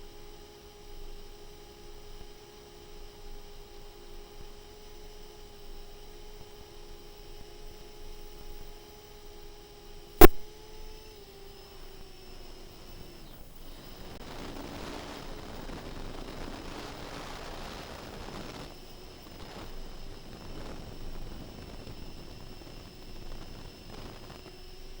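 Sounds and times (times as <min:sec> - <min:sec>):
sharp click: 0:10.2 - 0:10.4.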